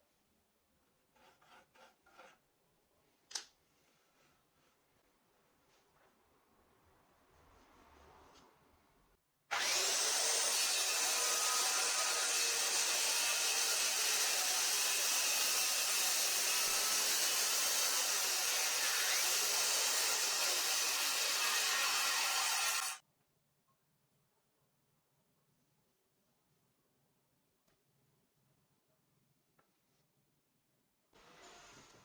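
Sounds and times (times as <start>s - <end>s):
electric jigsaw cutting wood: 9.5s - 23.0s.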